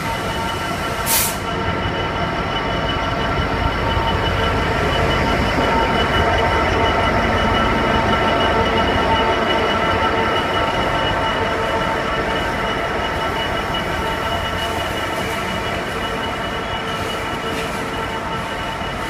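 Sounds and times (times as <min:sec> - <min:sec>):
train wheels squealing: 0:00.0 - 0:19.0
wheels rumbling on track: 0:00.0 - 0:19.0.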